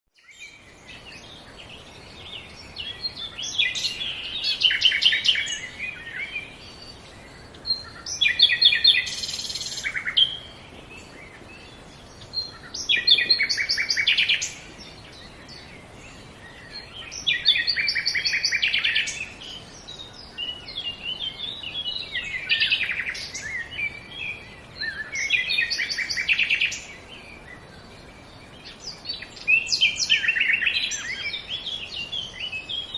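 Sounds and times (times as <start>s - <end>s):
songbird trilling and chirping: 0.2s - 32.9s.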